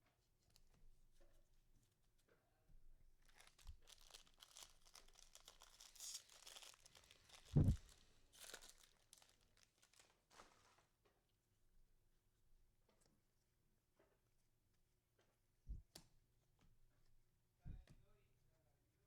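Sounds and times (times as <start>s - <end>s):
foil wrapper tearing and crinkling: 3.2s - 10.8s.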